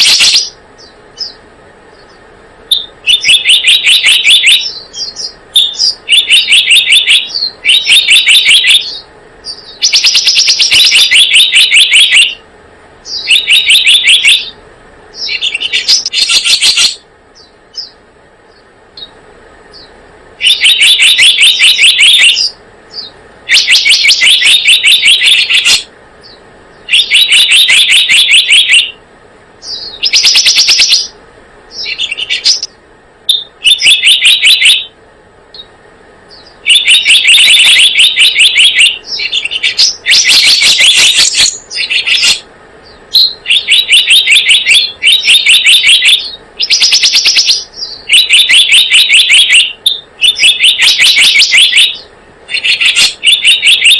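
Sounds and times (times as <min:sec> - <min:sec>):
bird rattling chirps: 0:02.7 - 0:12.4, 0:19.7 - 0:28.9, 0:29.6 - 0:31.1, 0:36.3 - 0:42.4, 0:43.1 - 0:52.0.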